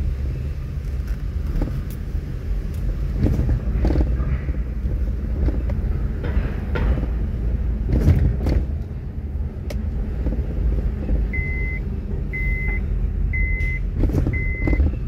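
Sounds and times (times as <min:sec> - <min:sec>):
car engine rumbling: 0:00.0 - 0:15.0
electronic beeps: 0:11.3 - 0:12.8, 0:13.4 - 0:15.0.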